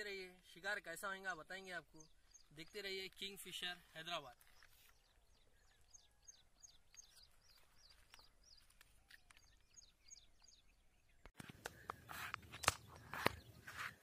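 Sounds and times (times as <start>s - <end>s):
quiet outdoor ambience: 0.0s - 14.0s
rustling and handling noise: 2.6s - 5.3s, 6.9s - 9.8s.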